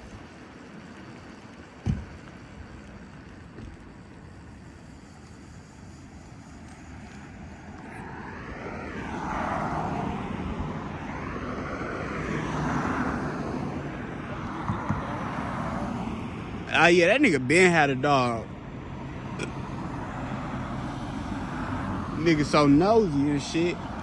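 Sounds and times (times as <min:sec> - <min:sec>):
low rumble of riding noise: 0:00.0 - 0:24.0
passing vehicle engine: 0:06.0 - 0:24.0.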